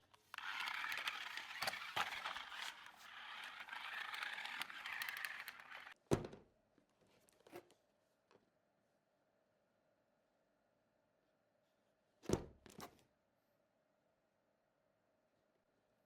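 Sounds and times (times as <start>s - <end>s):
small clicks: 0.0s - 6.0s.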